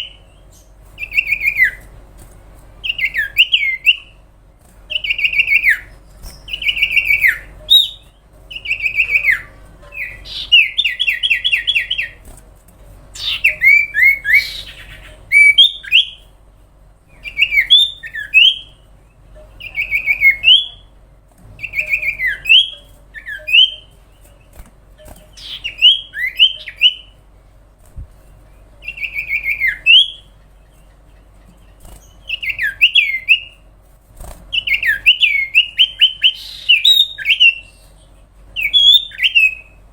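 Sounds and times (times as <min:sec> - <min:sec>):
bird singing whistled notes: 0:04.9 - 0:12.2, 0:13.2 - 0:16.2, 0:17.2 - 0:18.8, 0:21.6 - 0:23.9, 0:25.4 - 0:27.2, 0:28.8 - 0:30.3, 0:32.2 - 0:33.6, 0:34.6 - 0:37.9, 0:38.6 - 0:39.8.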